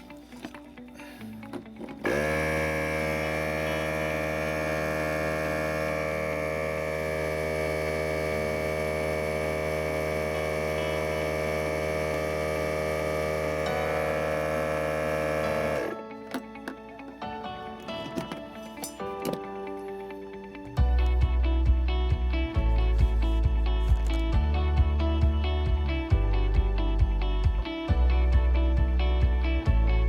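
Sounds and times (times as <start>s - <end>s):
air compressor motor buzzing: 1.6s - 19.4s.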